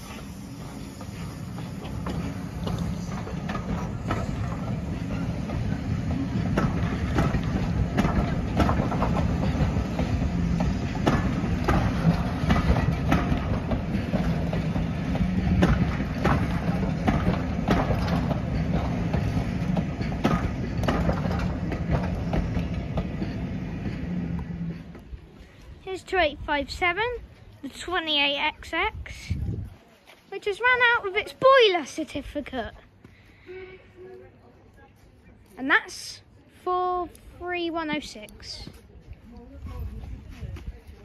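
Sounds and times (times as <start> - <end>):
wheels clicking over rail joints: 0.0 - 28.7
train rumble: 0.0 - 33.0.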